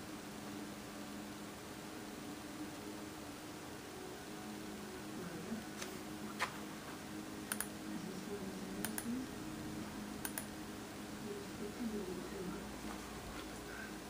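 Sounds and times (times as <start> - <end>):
low electrical hum: 0.0 - 14.0
computer mouse clicks: 7.5 - 7.7, 8.8 - 9.1, 10.2 - 10.5.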